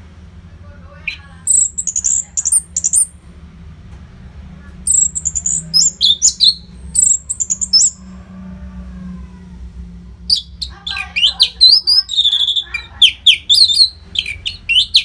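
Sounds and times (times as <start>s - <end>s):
steady low hum: 0.0s - 15.0s
thrush singing whistled notes: 1.1s - 3.1s, 4.9s - 8.0s, 10.3s - 15.0s.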